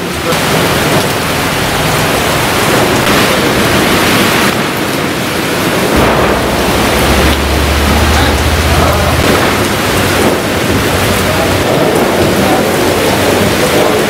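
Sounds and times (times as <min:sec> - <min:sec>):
gusting wind: 0:00.0 - 0:14.0
heavy rain: 0:00.0 - 0:14.0
low rumble: 0:05.4 - 0:13.2.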